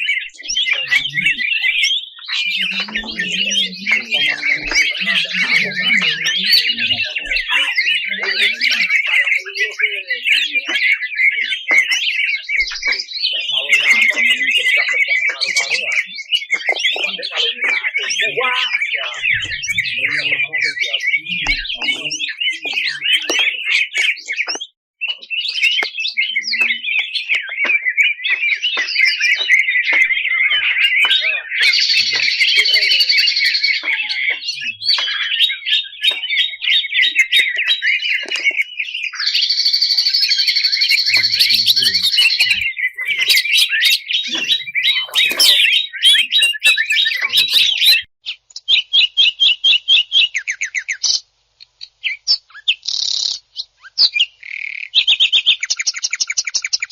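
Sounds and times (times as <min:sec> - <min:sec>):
rasping buzzy bird phrases: 0:00.0 - 0:24.5, 0:30.5 - 0:38.6, 0:40.7 - 0:48.1
bird chirping and trilling: 0:00.0 - 0:51.2, 0:51.8 - 0:56.9.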